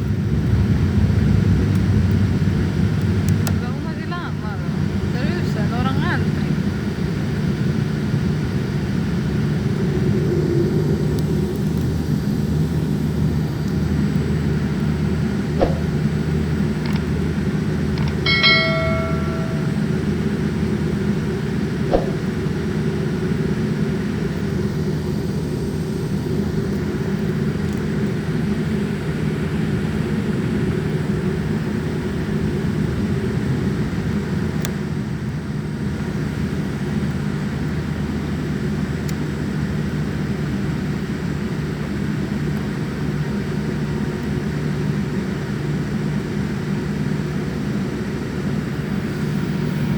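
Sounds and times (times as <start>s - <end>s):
airliner engine rumble in cabin: 0.0s - 49.9s
cabin chime: 18.0s - 20.2s.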